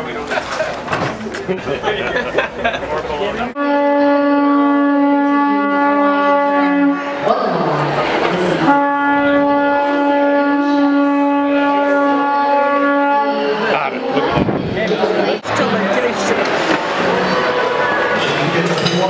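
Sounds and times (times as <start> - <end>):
conch shell trumpet blasts: 3.6 - 7.3, 8.7 - 13.7.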